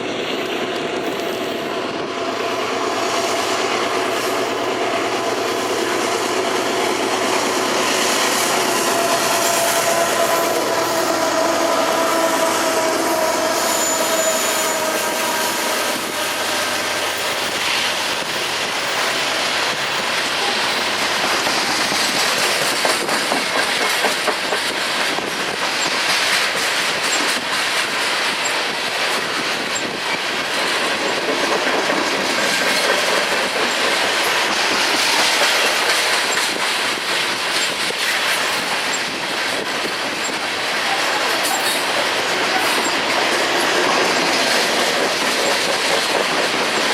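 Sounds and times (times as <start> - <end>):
train wheels clattering on rails: 0.0 - 46.9
wheel squeal: 12.0 - 17.6.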